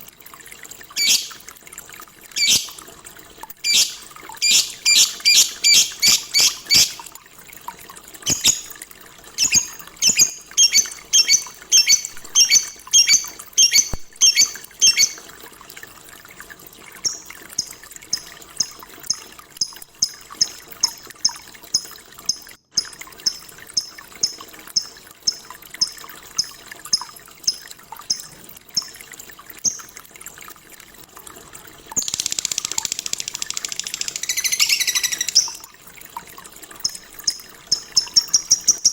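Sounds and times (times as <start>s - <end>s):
lovebird chirping: 1.0s - 1.4s, 2.4s - 2.8s, 3.6s - 7.1s, 8.3s - 8.7s, 9.4s - 15.2s, 17.0s - 18.7s, 32.0s - 35.7s.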